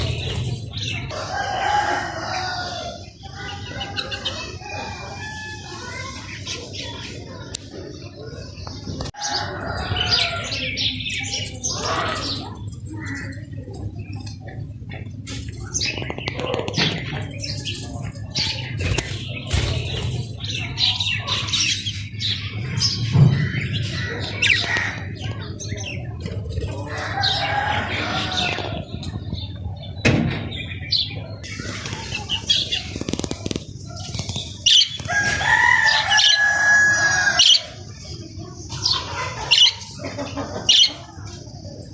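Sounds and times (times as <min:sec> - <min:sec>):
small birds chirping: 0:00.0 - 0:41.9
rooster crowing: 0:01.1 - 0:03.0, 0:27.0 - 0:28.8, 0:35.0 - 0:37.7.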